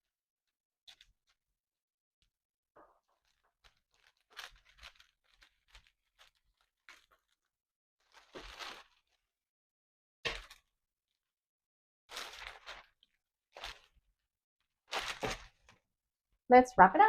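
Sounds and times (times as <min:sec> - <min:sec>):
cellophane crinkling: 0:02.8 - 0:09.4, 0:12.1 - 0:14.2, 0:14.9 - 0:15.8.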